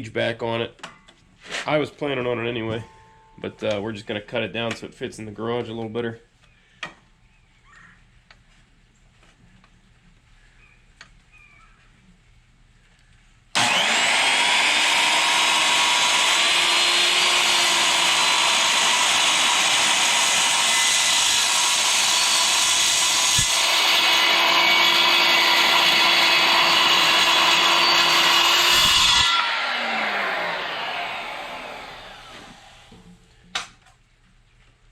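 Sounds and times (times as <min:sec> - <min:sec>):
power saw cutting steel: 0:13.6 - 0:33.0
saw motor winding down: 0:13.6 - 0:33.0.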